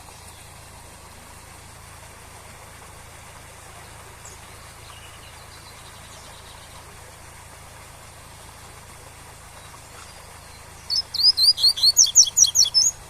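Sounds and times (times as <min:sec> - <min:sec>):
faint bird chirps: 0:09.6 - 0:13.0.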